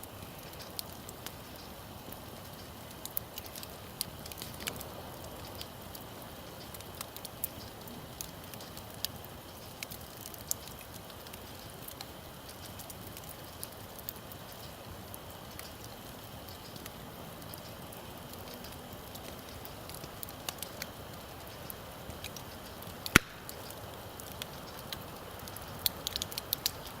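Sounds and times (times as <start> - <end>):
campfire crackling: 0.0 - 27.0
fire popping: 0.0 - 27.0.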